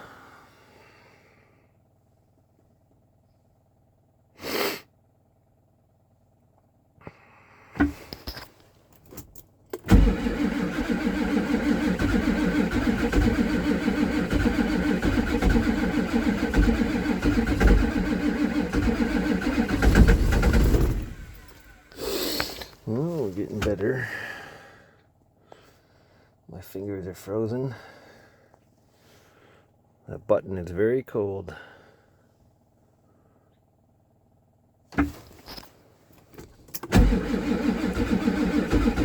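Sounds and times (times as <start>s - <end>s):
diesel engine firing roughly: 9.8s - 24.8s, 36.8s - 39.0s.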